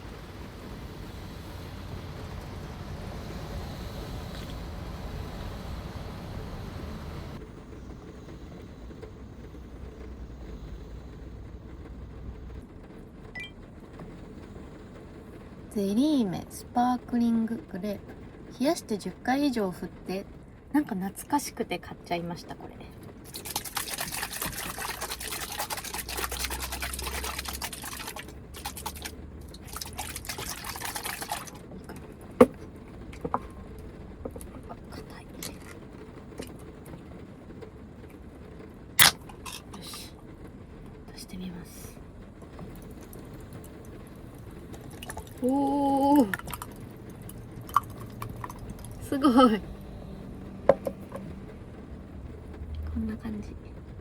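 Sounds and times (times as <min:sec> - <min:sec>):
muffled rain on van roof: 0:00.0 - 0:54.0
jelly drink sloshing while shaken: 0:23.2 - 0:36.6, 0:39.0 - 0:40.1, 0:42.4 - 0:49.4.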